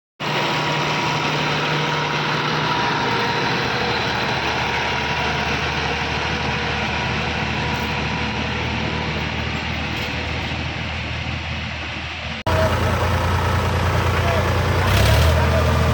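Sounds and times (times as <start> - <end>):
tractor engine idling: 0.2 - 15.9.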